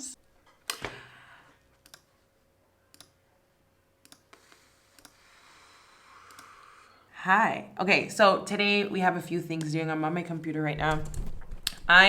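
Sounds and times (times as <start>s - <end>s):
sharp clicks: 10.9s - 11.9s.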